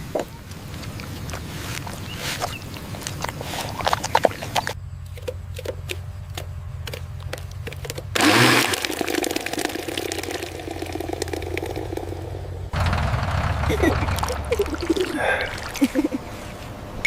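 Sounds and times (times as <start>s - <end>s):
small engine humming and knocking: 4.7s - 15.2s.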